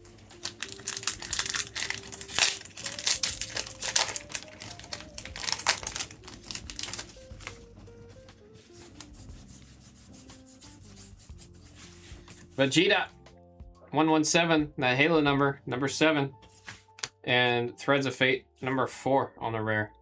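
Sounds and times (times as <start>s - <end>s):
soft background music: 0.0s - 20.0s
trading cards sliding and rubbing: 8.5s - 12.8s, 16.4s - 17.1s.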